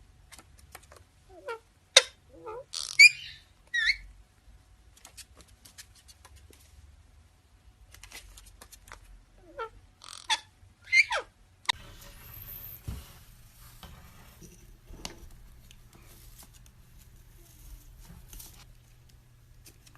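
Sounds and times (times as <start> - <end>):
parrot squawking and chirping: 1.3 - 4.1, 9.4 - 12.9.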